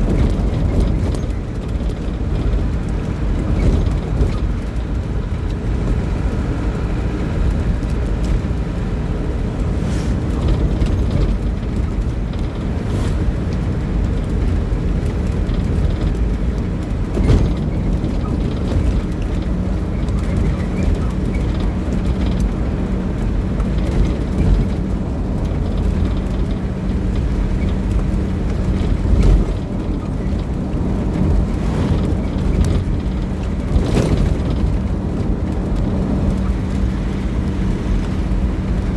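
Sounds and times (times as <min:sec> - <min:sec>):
vehicle engine rumble: 0:00.0 - 0:38.9.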